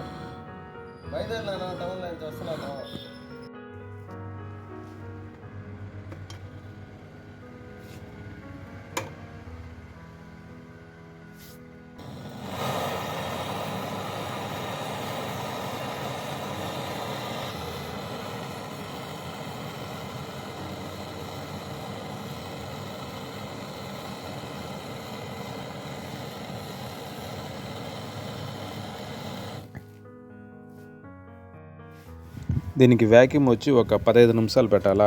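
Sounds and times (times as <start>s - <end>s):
motor running steadily: 0.0s - 0.4s, 12.0s - 29.8s.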